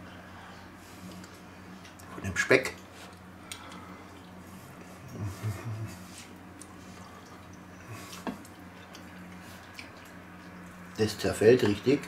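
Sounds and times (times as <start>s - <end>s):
low electrical hum: 0.0s - 12.0s
man chewing: 2.8s - 11.0s.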